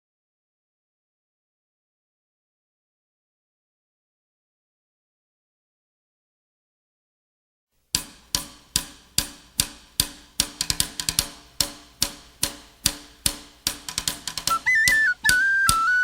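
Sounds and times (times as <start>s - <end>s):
drum beat: 8.1s - 16.0s.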